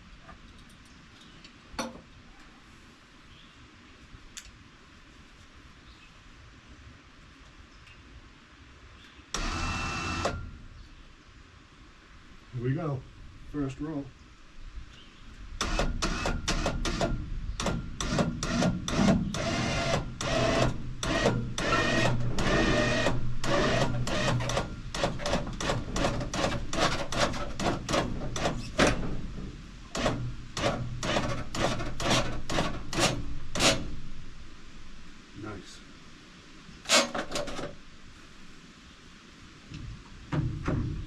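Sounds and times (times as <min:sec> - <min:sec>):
electric winch motor hum: 0:09.4 - 0:10.5, 0:18.0 - 0:28.5
sharp clicks and knocks: 0:15.6 - 0:34.0.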